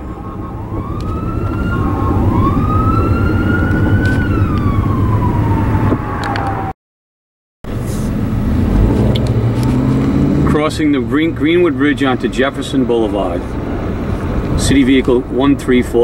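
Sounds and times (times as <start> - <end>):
car road rumble: 0.0 - 6.7, 7.7 - 16.0
emergency vehicle siren wailing: 0.0 - 6.8.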